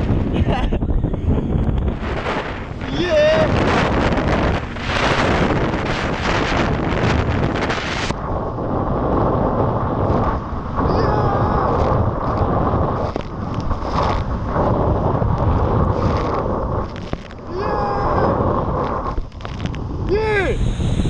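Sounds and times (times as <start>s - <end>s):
wind buffeting microphone: 0.0s - 21.0s
faint whine: 15.8s - 21.0s.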